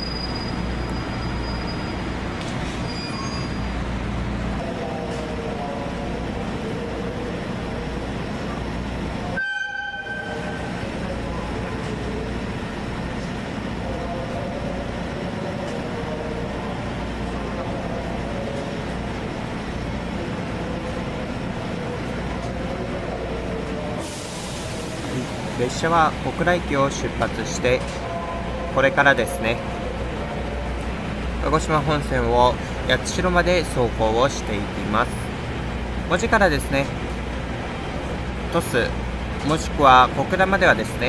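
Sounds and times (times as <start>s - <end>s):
diesel train rumbling: 0.0s - 41.0s
train horn toot: 9.4s - 10.7s.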